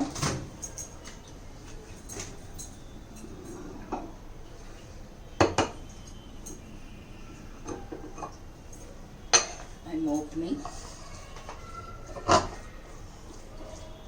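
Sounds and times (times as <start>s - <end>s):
dishes clinking: 7.6s - 10.8s.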